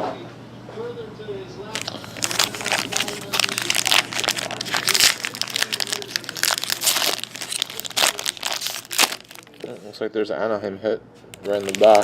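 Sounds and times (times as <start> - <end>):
plastic wrapping crinkling: 1.7 - 10.0, 11.3 - 12.0.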